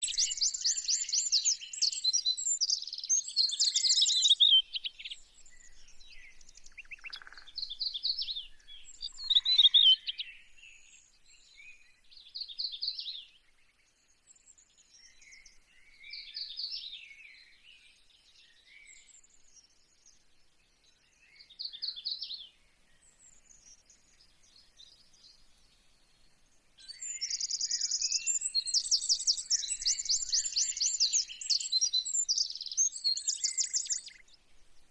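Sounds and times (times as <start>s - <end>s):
small birds chirping and trilling: 0.0s - 34.9s.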